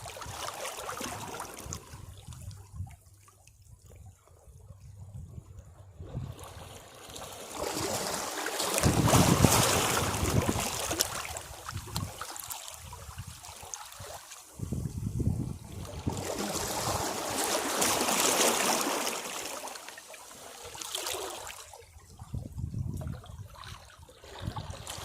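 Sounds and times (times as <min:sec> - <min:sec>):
waves washing against rocks: 0:07.1 - 0:12.5, 0:15.6 - 0:21.6.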